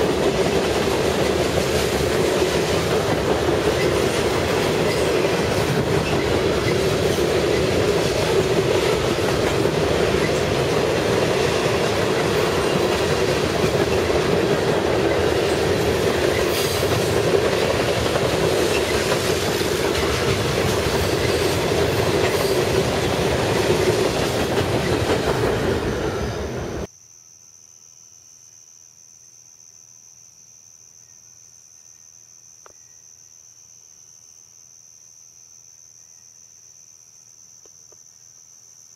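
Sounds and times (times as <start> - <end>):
train cars rumbling and clattering: 0.0 - 26.9
insects trilling: 0.0 - 38.9.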